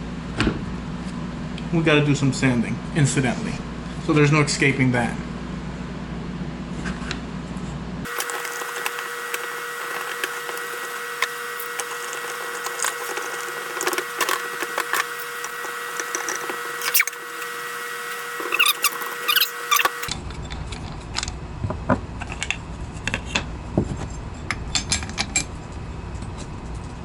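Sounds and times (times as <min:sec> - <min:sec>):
power sander on wood: 0:08.1 - 0:20.1.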